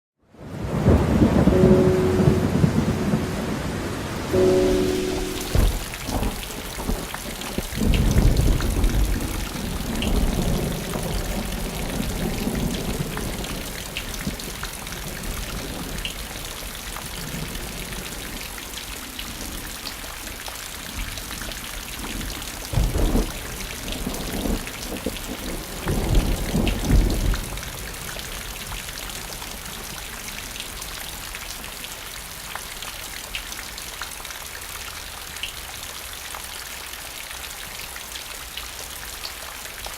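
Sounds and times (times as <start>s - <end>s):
steady rain: 0.3s - 39.9s
thunder rumbling: 0.6s - 13.5s.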